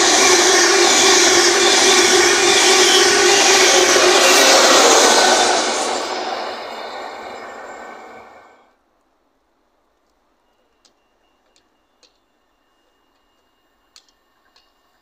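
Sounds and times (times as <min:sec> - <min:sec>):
train passing at speed: 0:00.0 - 0:08.8
faint clicks: 0:10.0 - 0:14.9.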